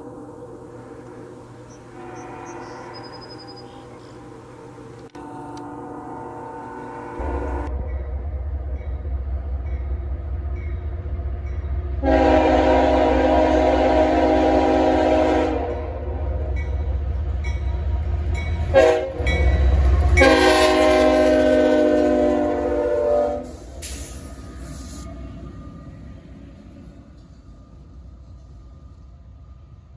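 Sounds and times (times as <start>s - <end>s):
low rumble of train: 0.0s - 29.9s
train air horn blasts: 0.8s - 4.2s, 5.1s - 7.7s, 12.0s - 16.3s, 18.6s - 25.1s.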